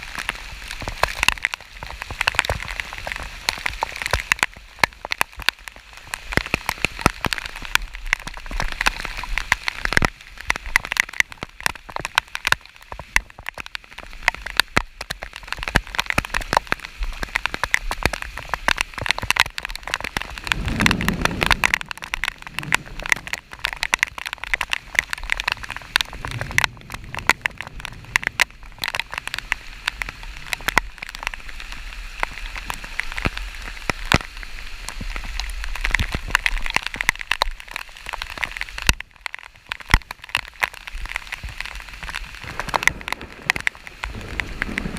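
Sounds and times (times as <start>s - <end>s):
heavy rain drops tapping: 0.0s - 44.9s.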